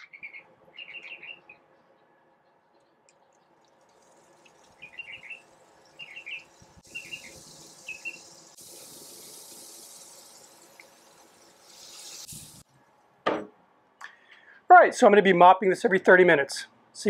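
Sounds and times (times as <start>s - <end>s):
small bird chirping: 0.0s - 1.7s, 4.7s - 8.5s
soft hiss of liquid poured: 3.1s - 12.7s.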